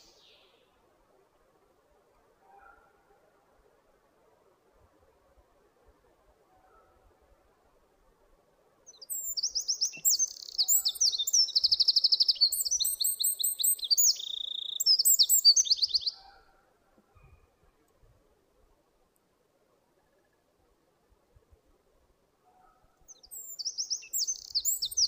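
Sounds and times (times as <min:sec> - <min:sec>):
wren singing trills: 0:08.9 - 0:16.2, 0:23.1 - 0:25.0.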